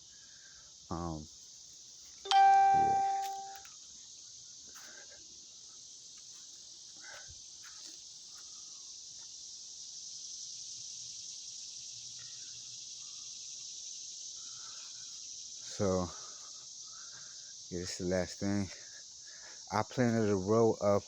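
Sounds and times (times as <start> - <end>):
high-pitched insects droning: 0.0 - 21.0.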